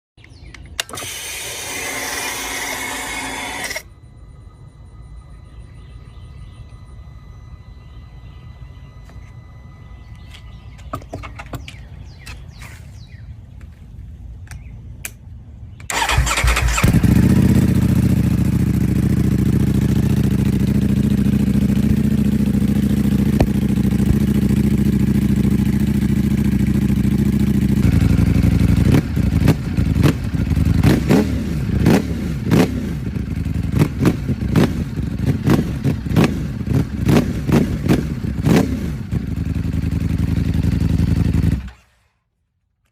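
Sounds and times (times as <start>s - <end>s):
motorcycle throttle blips: 4.2s - 41.9s
motorcycle engine idling: 15.8s - 42.0s.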